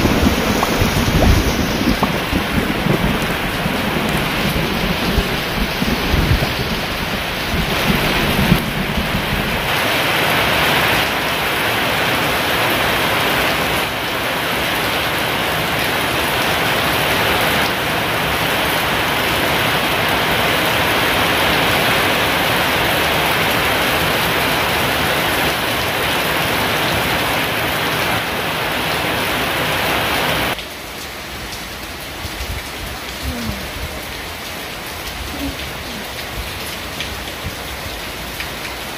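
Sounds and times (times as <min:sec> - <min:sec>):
thunder rumble: 0:00.0 - 0:11.1
heavy rain: 0:00.0 - 0:38.9.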